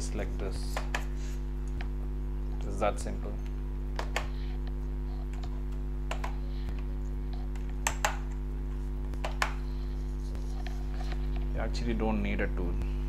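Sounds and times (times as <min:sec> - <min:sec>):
steady low hum: 0:00.0 - 0:13.0
keycaps clicking and snapping: 0:05.3 - 0:06.4, 0:07.5 - 0:08.4, 0:09.2 - 0:09.6.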